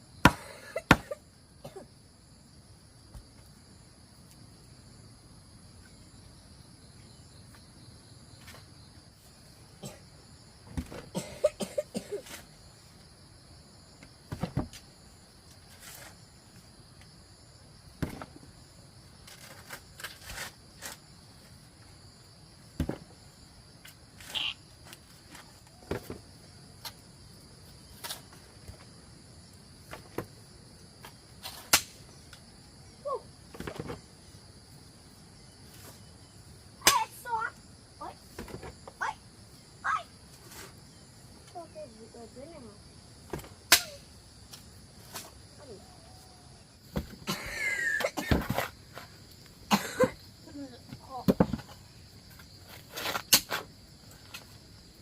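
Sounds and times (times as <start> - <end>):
insects chirring: 0.0 - 55.0
sharp knocks and thuds: 14.2 - 14.8, 18.0 - 18.4, 22.7 - 23.1, 38.3 - 39.0, 46.9 - 47.3, 50.9 - 51.8.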